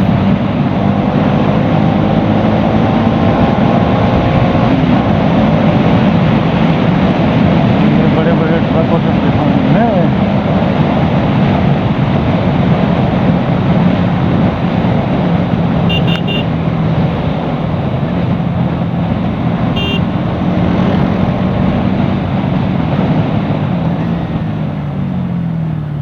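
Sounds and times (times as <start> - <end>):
motorcycle engine running: 0.0 - 8.2, 8.8 - 26.0
wind rush on microphone: 0.0 - 24.8
short horn beeps: 15.9 - 16.5, 19.8 - 20.1.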